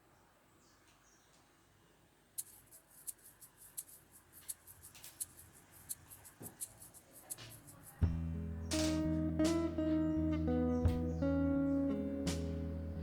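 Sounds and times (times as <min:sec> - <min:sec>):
strummed acoustic guitar music: 0:08.1 - 0:13.0.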